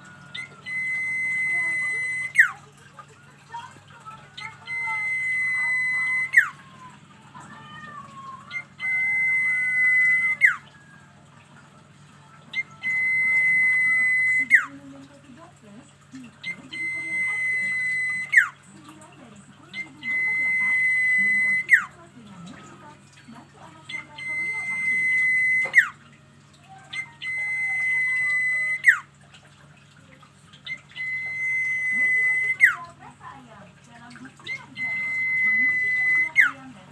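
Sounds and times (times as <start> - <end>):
soft bird warbling: 0.0 - 11.1, 12.3 - 14.9, 16.0 - 36.9
bird whistling song: 0.0 - 11.2, 12.1 - 14.9, 16.2 - 29.2, 30.4 - 36.9.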